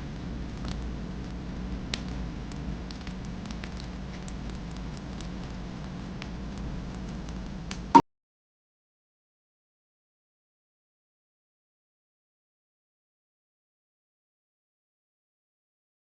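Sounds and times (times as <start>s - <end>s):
fire crackling with pops and snaps: 0.0s - 7.9s
low rumble of flames: 0.0s - 7.9s.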